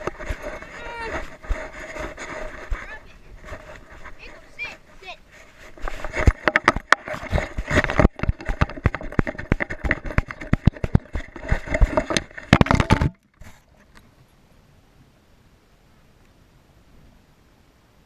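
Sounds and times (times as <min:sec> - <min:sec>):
camera mount knocking and rattling: 0:06.2 - 0:13.2.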